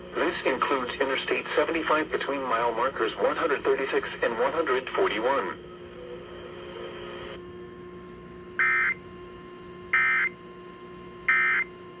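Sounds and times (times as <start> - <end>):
steady hum: 0.0 - 12.0
electronic squawk tones: 8.6 - 9.0, 9.9 - 10.4, 11.3 - 11.7.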